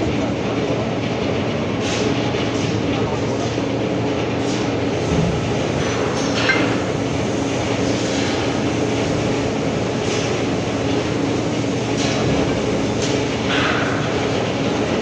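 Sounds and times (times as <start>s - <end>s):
machine humming: 4.9s - 15.0s.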